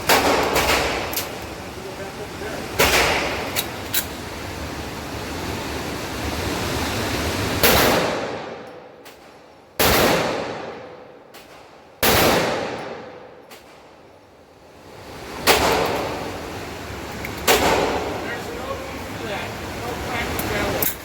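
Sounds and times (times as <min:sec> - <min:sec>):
pistol shots echoing: 0:00.0 - 0:01.4, 0:02.7 - 0:03.6, 0:09.8 - 0:11.0, 0:12.0 - 0:13.3, 0:17.4 - 0:18.2.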